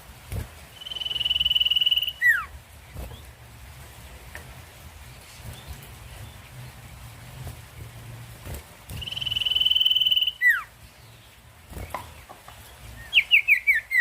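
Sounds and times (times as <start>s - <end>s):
bird trilling and whistling: 0.8s - 2.5s, 8.9s - 10.7s, 13.0s - 14.0s.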